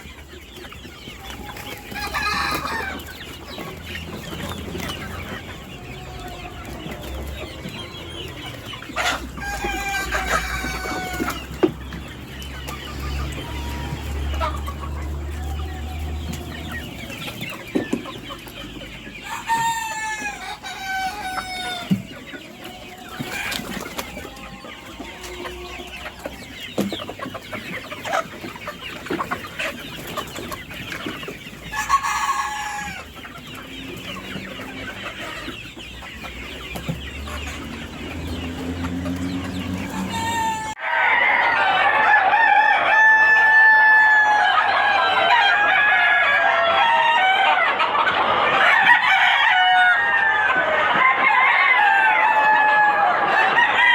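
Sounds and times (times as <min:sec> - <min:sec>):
chickens clucking: 0:00.0 - 0:53.9
rooster crowing: 0:01.8 - 0:03.1, 0:09.0 - 0:11.5, 0:19.2 - 0:22.0, 0:22.7 - 0:26.5, 0:39.6 - 0:47.8, 0:48.5 - 0:53.9.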